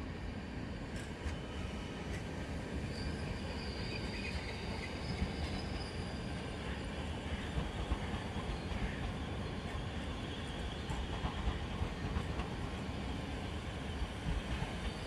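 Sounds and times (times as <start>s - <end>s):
train wheels rumbling on rails: 0.2s - 15.0s
faint high squeal: 2.8s - 7.5s.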